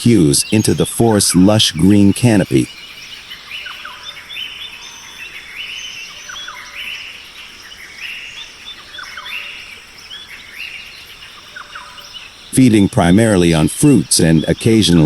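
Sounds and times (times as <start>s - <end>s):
repeating chirping call: 0.0s - 5.4s, 11.0s - 15.0s
birds calling: 0.0s - 15.0s
faint steady hiss: 0.0s - 15.0s
insects calling: 0.0s - 15.0s.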